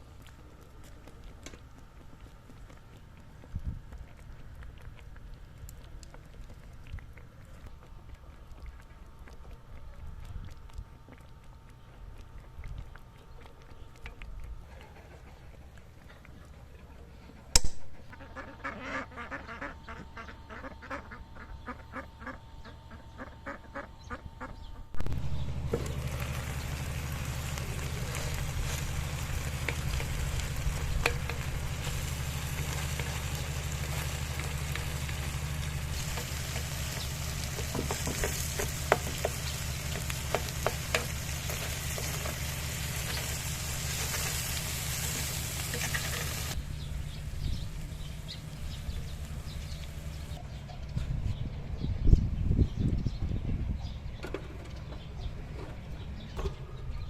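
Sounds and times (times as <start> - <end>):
low hum: 16.8 - 57.0
sharp click: 17.6 - 17.9
meat sizzling in a pan: 25.2 - 46.6.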